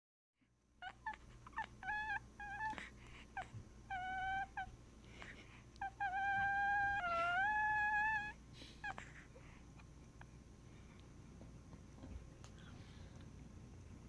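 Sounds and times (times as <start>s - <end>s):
dog whimpering: 0.8s - 4.8s, 5.8s - 9.3s.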